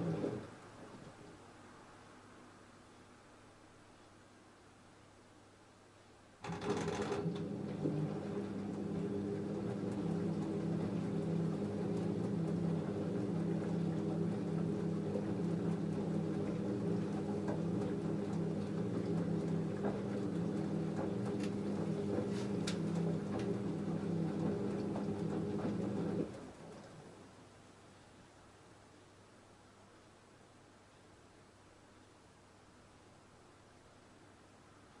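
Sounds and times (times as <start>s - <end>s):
washing machine motor hum: 0.0s - 1.5s, 6.4s - 27.5s.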